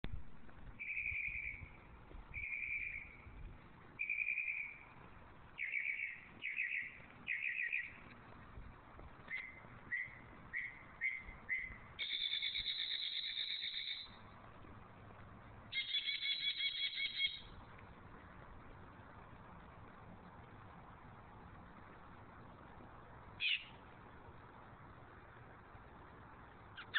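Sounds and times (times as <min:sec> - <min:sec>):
bird singing: 0:00.8 - 0:03.3, 0:04.0 - 0:05.0, 0:05.6 - 0:08.1, 0:09.3 - 0:14.2, 0:15.7 - 0:17.6, 0:23.4 - 0:23.8.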